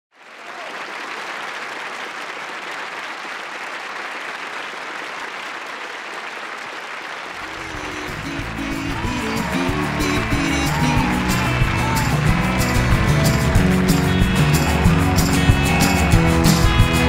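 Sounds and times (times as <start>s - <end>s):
audience applauding: 0.1s - 17.0s
band music: 7.4s - 17.0s.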